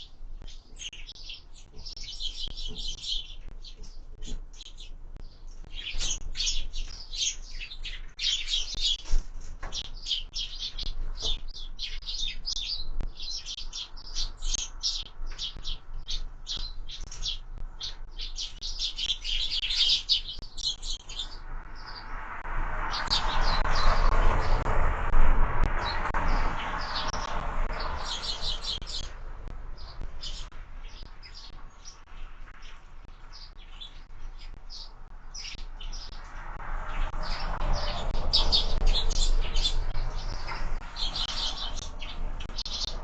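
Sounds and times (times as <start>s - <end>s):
sparrows chirping: 0.0s - 43.0s
broad rushing noise: 21.4s - 30.6s.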